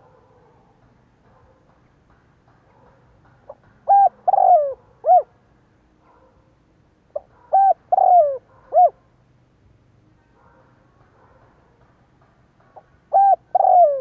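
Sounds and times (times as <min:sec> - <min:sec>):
dove cooing: 0:03.8 - 0:05.4, 0:07.1 - 0:09.0, 0:13.1 - 0:14.0.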